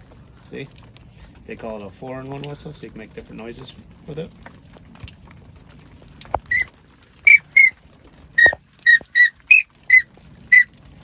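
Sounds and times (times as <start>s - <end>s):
duck call whistle toots: 6.4s - 6.7s, 7.3s - 7.8s, 8.4s - 10.7s.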